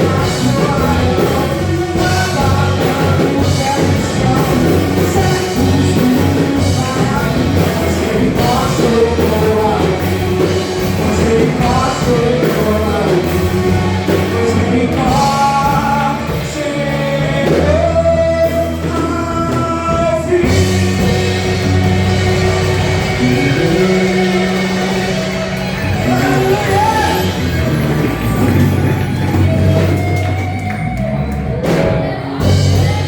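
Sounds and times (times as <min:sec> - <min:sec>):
person singing: 0:00.0 - 0:33.0
steady bass notes: 0:00.0 - 0:33.0
worship band playing rock song: 0:00.0 - 0:33.0.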